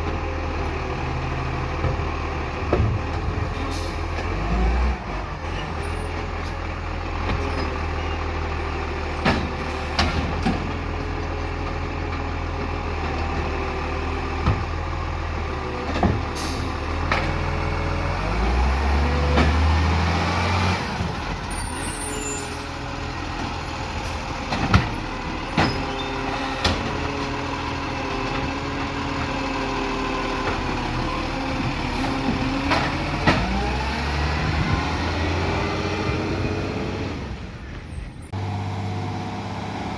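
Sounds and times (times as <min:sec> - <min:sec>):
garbage truck engine revving: 0:00.1 - 0:39.9
air brakes hissing: 0:16.4 - 0:16.9.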